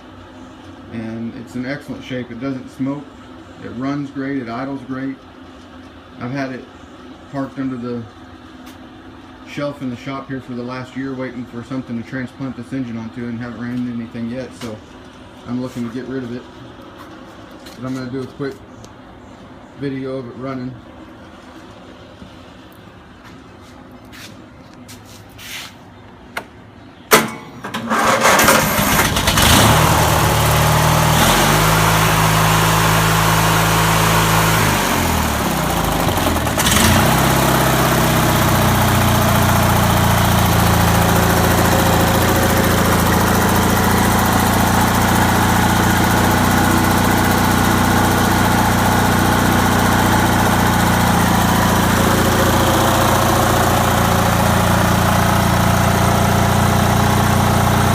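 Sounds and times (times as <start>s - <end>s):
small engine starting and running: 27.6s - 57.9s.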